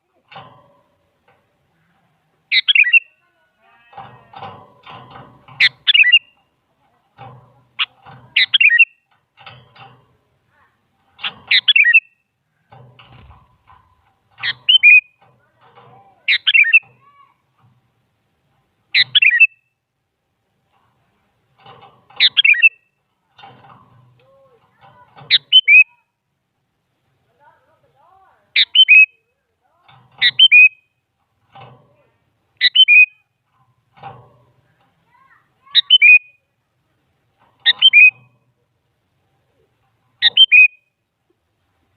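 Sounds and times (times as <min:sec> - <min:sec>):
faint rough noisy sounds: 0:00.0 - 0:28.6
bird whistled song: 0:02.5 - 0:03.1, 0:08.4 - 0:09.0, 0:11.5 - 0:12.2, 0:14.4 - 0:15.2, 0:16.3 - 0:16.9, 0:19.0 - 0:19.7, 0:22.2 - 0:22.9, 0:25.3 - 0:26.0, 0:28.6 - 0:29.2, 0:30.2 - 0:30.9, 0:32.6 - 0:33.2, 0:35.8 - 0:36.5, 0:37.6 - 0:38.3, 0:40.2 - 0:40.9
bulbul singing whistled notes: 0:40.2 - 0:40.9.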